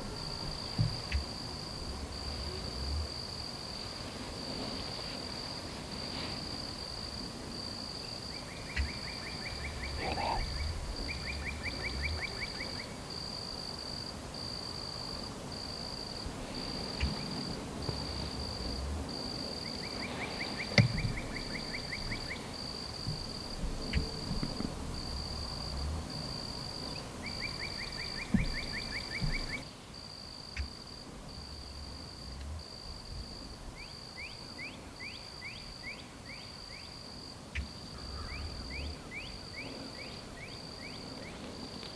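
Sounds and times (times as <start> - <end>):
insect chirping in pulsed rhythm: 0.0 - 3.6, 6.9 - 41.4
trilled bird calls: 26.8 - 29.6.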